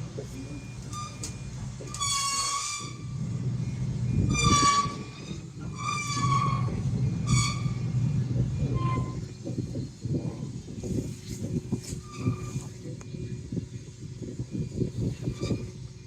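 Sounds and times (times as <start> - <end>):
low engine hum: 0.0 - 16.0
horn blasts: 1.9 - 8.0.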